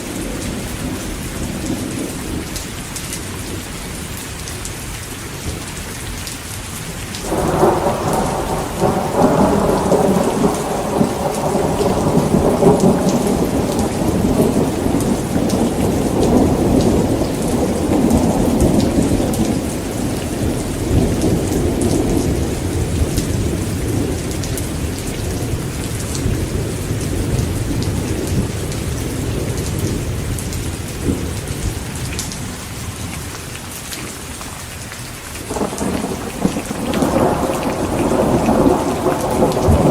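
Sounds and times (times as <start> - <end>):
heavy rain falling: 0.0 - 39.9
thunder rumbling: 7.2 - 32.6, 35.5 - 39.9.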